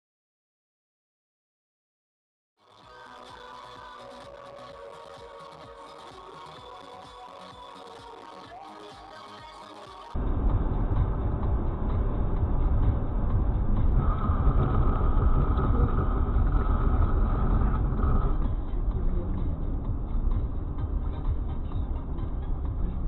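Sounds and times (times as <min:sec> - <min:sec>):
car road and engine rumble: 0:10.2 - 0:23.0.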